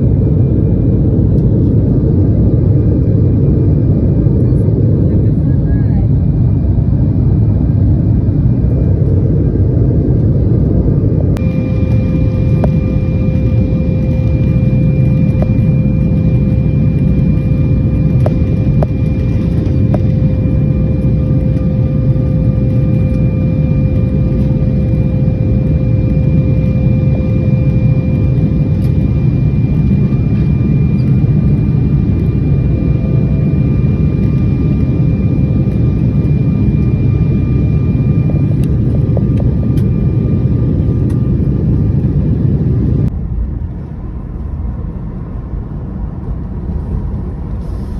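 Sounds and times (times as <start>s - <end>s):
vehicle engine rumble: 4.4s - 34.9s
faint whining tones: 11.1s - 47.9s.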